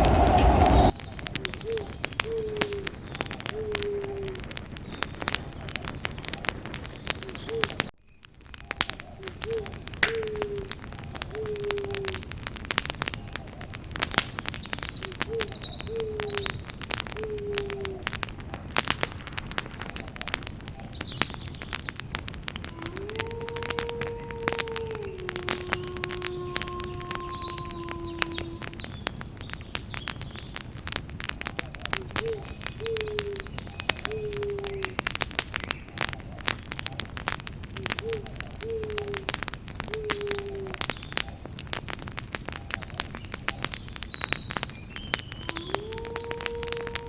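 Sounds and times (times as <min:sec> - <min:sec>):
campfire crackling and popping: 0:00.0 - 0:47.0
bird calling: 0:22.7 - 0:29.0, 0:45.1 - 0:47.0.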